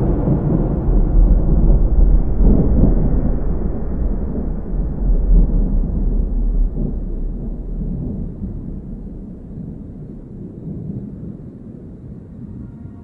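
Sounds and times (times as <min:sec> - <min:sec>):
deep low rumble: 0:00.0 - 0:13.0.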